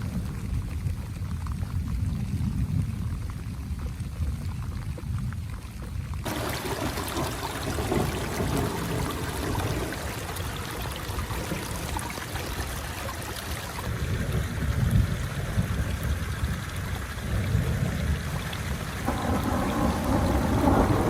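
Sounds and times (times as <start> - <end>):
steady rain: 0.0 - 21.0
low rumble: 19.0 - 21.0.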